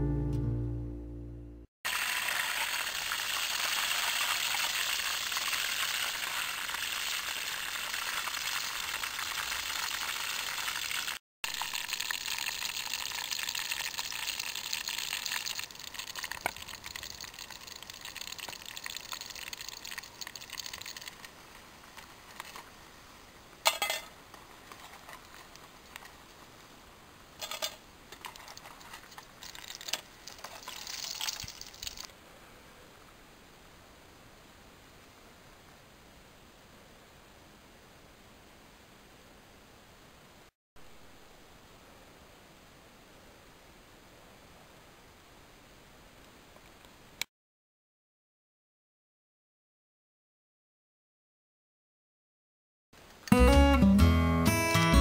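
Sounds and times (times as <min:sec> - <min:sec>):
slices sizzling in hot oil: 0:01.9 - 0:21.2.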